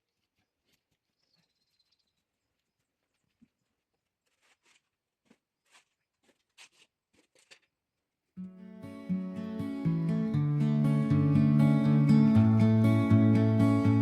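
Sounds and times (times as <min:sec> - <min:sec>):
faint ticks and scrapes: 0:00.0 - 0:07.8.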